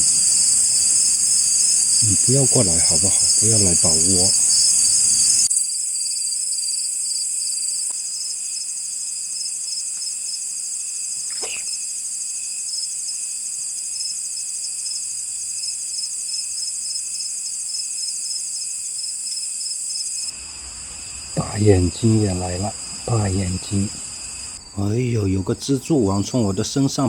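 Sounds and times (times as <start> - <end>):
crickets and night insects trilling: 0.0 - 27.0.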